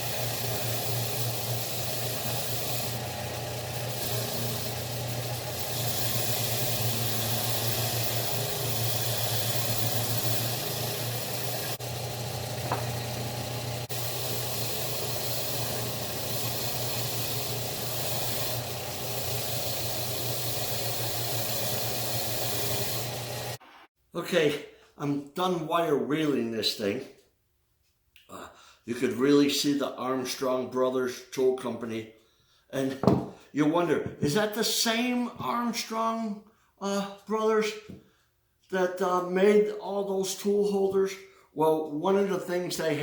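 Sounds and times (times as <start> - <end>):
motor hum: 0.0 - 23.6
wire wheel scouring metal: 0.0 - 23.6.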